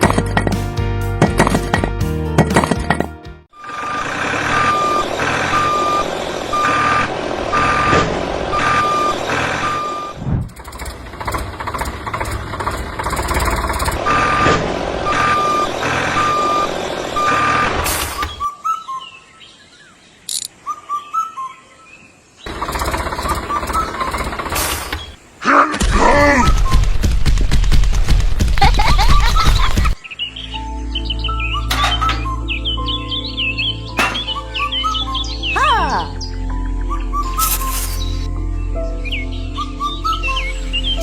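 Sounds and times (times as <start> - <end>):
engine running: 0.0 - 18.4, 22.5 - 25.2, 31.6 - 32.6
truck reversing alarm beeping: 3.6 - 10.2, 13.1 - 18.6, 22.5 - 24.9, 31.5 - 32.5, 34.0 - 35.4
short chirps: 37.2 - 38.3.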